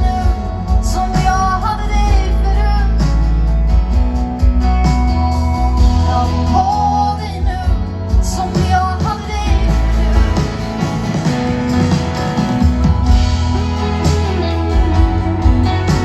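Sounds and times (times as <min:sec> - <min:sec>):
woman singing: 0:00.0 - 0:03.2, 0:05.9 - 0:10.8
live band playing pop ballad: 0:00.0 - 0:16.0.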